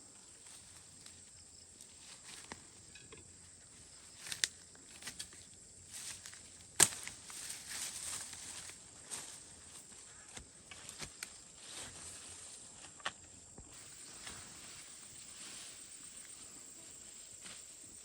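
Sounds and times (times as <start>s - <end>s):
steady high hiss: 13.7s - 18.0s.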